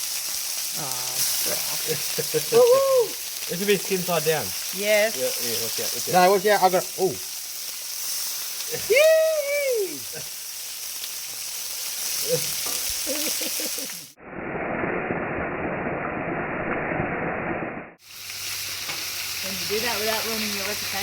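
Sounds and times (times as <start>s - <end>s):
fish sizzling in a pan: 0.0s - 14.2s, 18.0s - 21.0s
person calling out: 2.5s - 3.2s, 8.7s - 10.1s.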